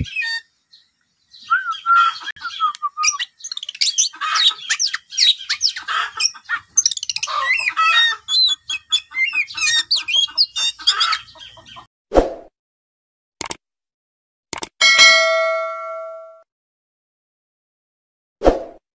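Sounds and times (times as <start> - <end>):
birds chirping: 0.0 - 11.9.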